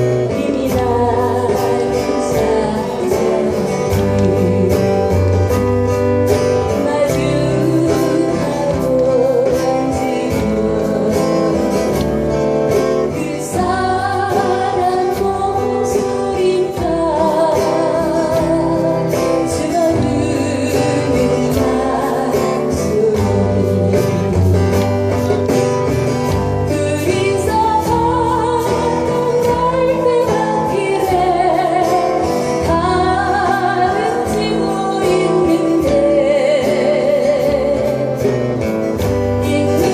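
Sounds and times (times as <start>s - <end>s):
person singing with vibrato: 0.0s - 25.0s, 26.5s - 39.9s
live band playing: 0.0s - 39.9s.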